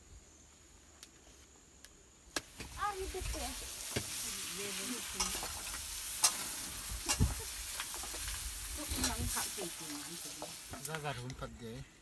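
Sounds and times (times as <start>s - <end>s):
food sizzling in a pan: 2.4s - 11.2s.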